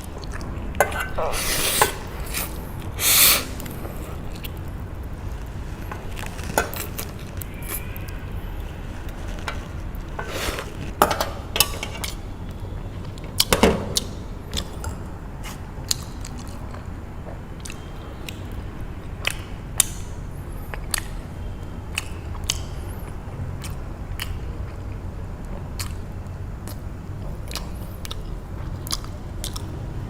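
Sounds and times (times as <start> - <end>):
eating mouth sounds: 0.0 - 4.6
steady low hum: 0.0 - 13.4.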